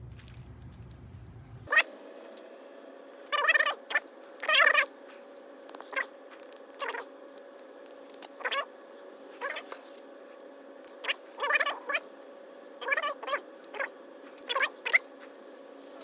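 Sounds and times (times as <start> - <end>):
faint steady hum: 0.0 - 16.0
animal giving wavering cries: 3.2 - 4.9, 8.4 - 8.7, 9.3 - 9.8, 11.0 - 12.1, 12.8 - 15.2.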